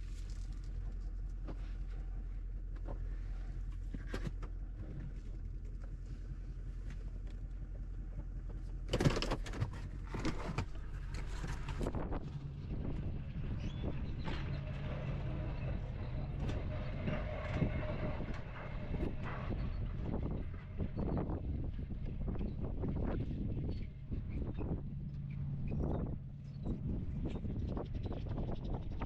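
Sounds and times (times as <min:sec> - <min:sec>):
engine running: 0:00.0 - 0:29.0
steady whine: 0:10.7 - 0:29.0.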